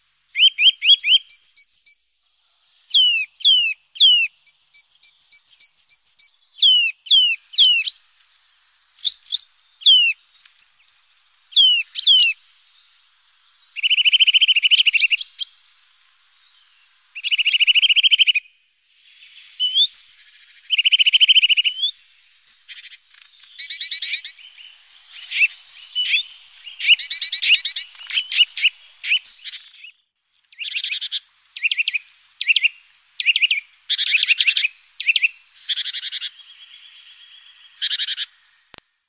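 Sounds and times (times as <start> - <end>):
songbirds singing: 0.0 - 38.8.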